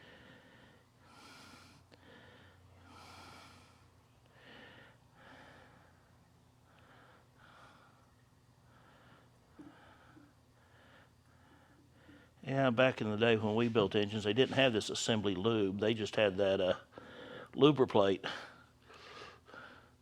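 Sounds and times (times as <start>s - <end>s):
person breathing close to microphone: 0.0s - 6.1s
low steady hum: 0.0s - 20.0s.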